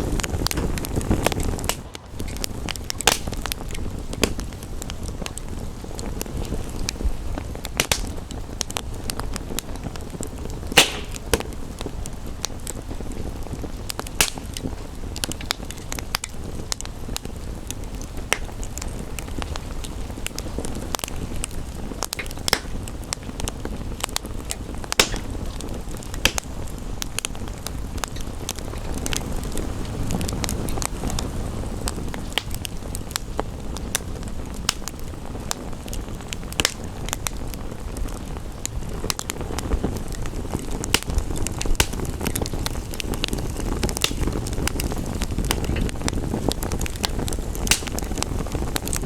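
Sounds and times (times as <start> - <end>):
rain: 0.0 - 49.0
wood fire crackling and popping: 0.0 - 49.0.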